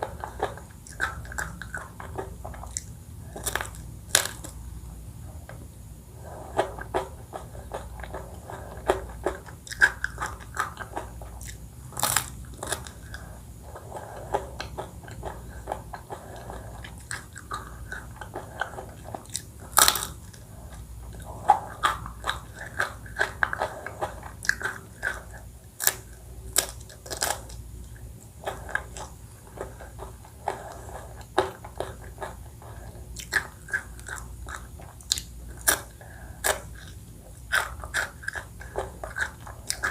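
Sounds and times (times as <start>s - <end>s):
crunchy bites: 0.0s - 4.6s, 6.6s - 20.4s, 21.1s - 27.6s
wet chewing: 0.0s - 4.6s, 6.2s - 39.9s.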